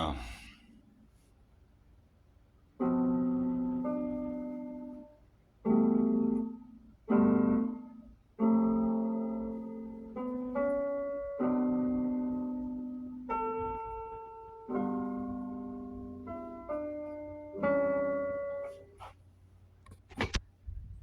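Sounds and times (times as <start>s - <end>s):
slow piano chords: 2.8s - 19.5s.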